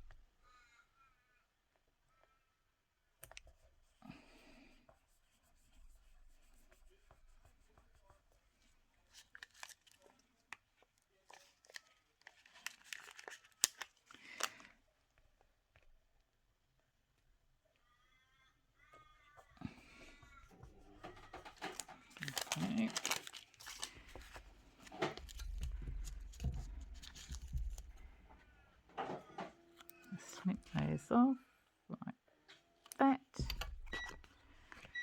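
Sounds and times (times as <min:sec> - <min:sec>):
paper rustling and crinkling: 0:08.6 - 0:14.7, 0:19.8 - 0:28.5.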